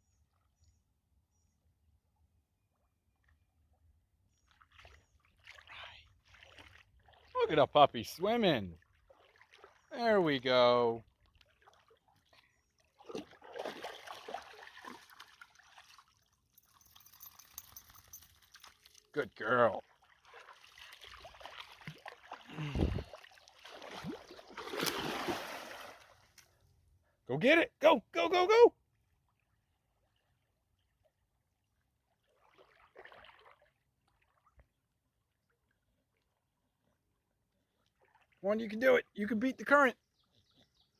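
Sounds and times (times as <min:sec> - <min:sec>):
water splashing and trickling: 0:02.5 - 0:26.6, 0:28.9 - 0:39.6.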